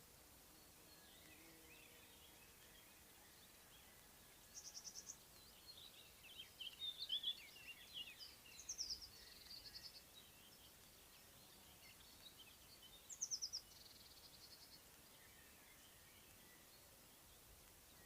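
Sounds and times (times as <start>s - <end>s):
songbird trilling and twittering: 0.6s - 17.3s.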